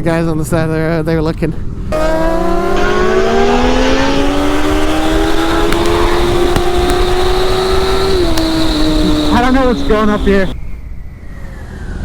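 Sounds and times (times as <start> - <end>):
motorcycle engine accelerating: 1.9 - 10.6.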